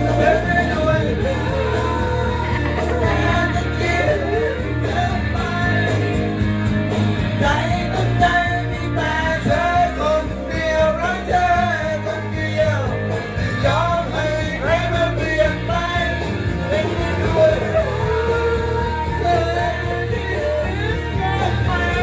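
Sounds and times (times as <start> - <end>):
pop-rock song with singing: 0.0 - 22.0.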